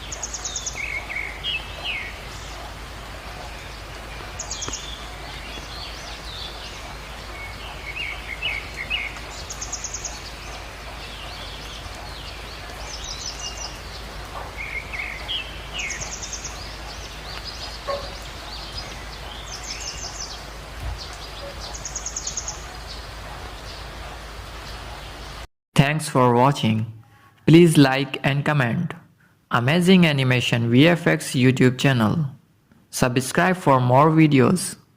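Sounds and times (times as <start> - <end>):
birds chirping: 0.0 - 25.4
rain hissing: 0.0 - 25.5.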